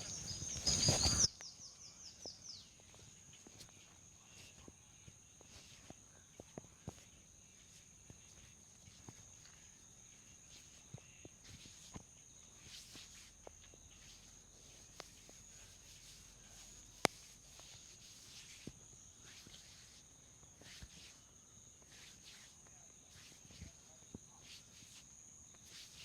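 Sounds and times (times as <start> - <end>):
hands rubbing through hair: 0.0 - 1.3, 10.5 - 12.0, 12.6 - 21.3, 21.9 - 26.0.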